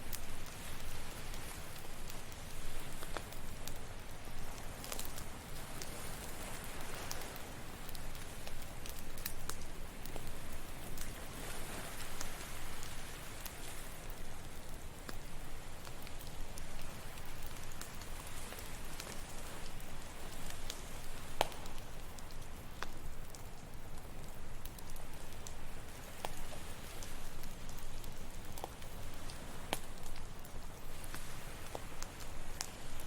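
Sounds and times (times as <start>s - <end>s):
campfire crackling: 0.0s - 33.0s
ocean waves: 4.0s - 9.0s, 9.9s - 14.1s, 30.8s - 33.0s.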